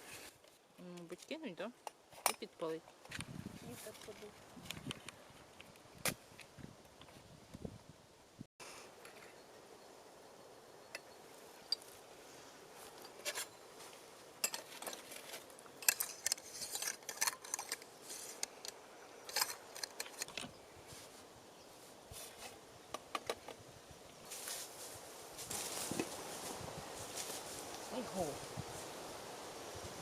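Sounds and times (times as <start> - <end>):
faint steady background noise: 0.0 - 30.0
small irregular clicks: 14.5 - 20.5.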